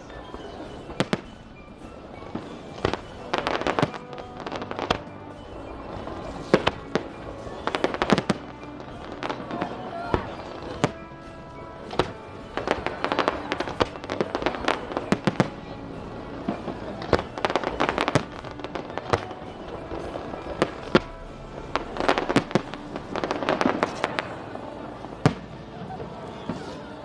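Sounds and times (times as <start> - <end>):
fireworks bangs: 0.0 - 27.0
rapid fireworks crackling: 0.0 - 27.0.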